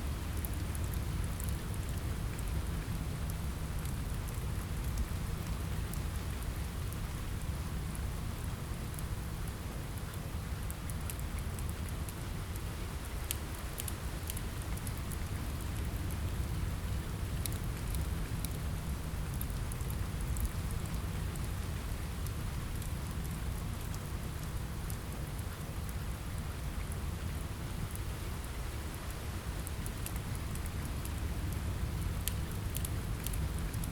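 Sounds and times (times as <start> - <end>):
steady rain rumbling: 0.0 - 33.9
small sharp crackles: 29.6 - 33.9.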